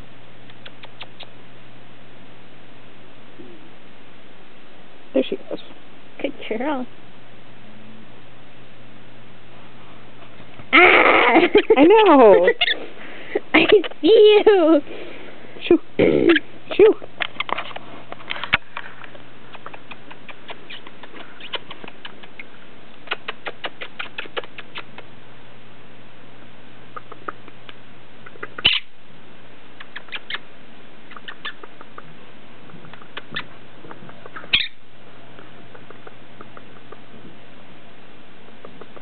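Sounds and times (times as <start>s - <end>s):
parrot clicking: 19.5s - 22.5s, 35.4s - 37.0s
parrot short loud sounds: 34.5s - 34.8s.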